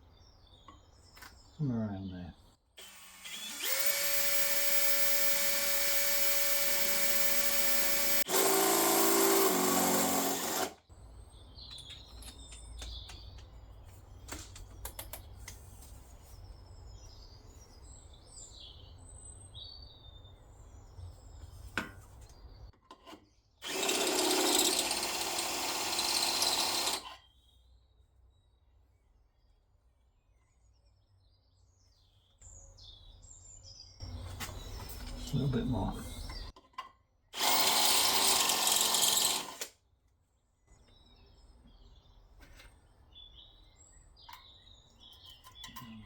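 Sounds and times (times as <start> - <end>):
electric drill boring sheet metal: 2.8 - 10.8, 23.6 - 27.2, 37.4 - 39.7.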